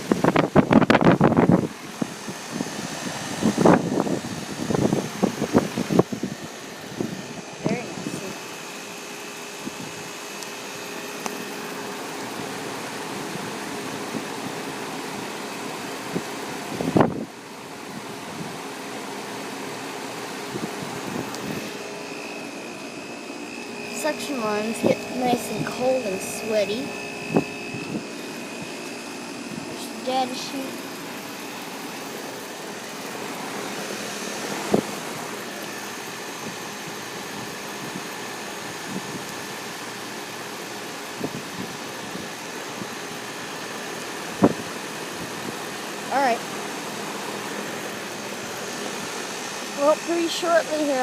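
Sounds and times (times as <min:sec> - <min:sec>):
heat pump fan air rushing: 0:00.0 - 0:51.0.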